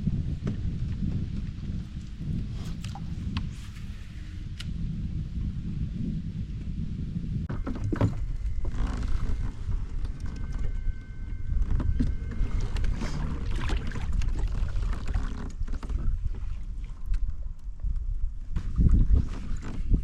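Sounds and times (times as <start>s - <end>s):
wind rumble on microphone: 0.0s - 20.0s
kayak knocks and clicks: 7.5s - 10.8s.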